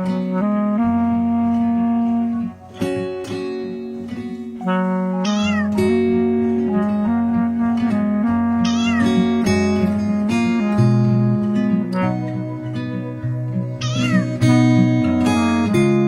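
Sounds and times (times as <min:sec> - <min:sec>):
background music: 0:00.2 - 0:16.0
cat meow: 0:05.2 - 0:06.0, 0:08.6 - 0:09.4, 0:13.8 - 0:14.5.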